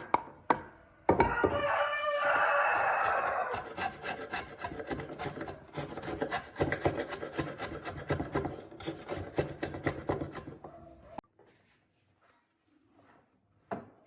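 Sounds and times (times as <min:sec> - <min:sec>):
wood being rasped by hand: 0:02.8 - 0:10.7.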